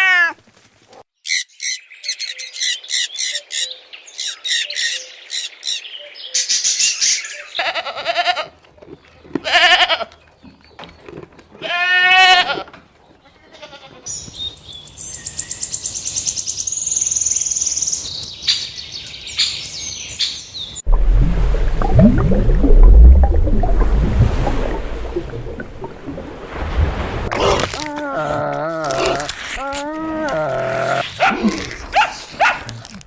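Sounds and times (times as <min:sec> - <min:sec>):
goat bleating: 0:07.6 - 0:08.6, 0:09.4 - 0:10.2, 0:11.6 - 0:12.7, 0:13.4 - 0:14.1.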